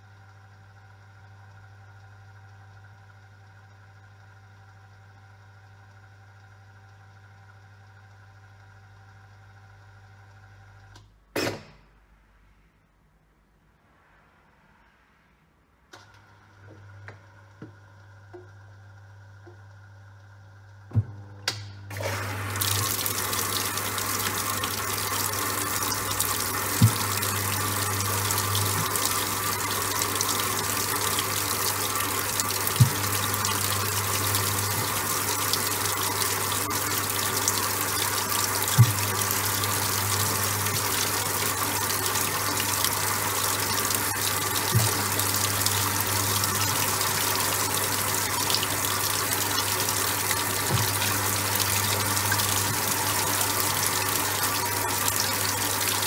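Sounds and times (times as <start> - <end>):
washing machine low hum: 16.1 - 56.0
water pouring into drum: 21.9 - 56.0.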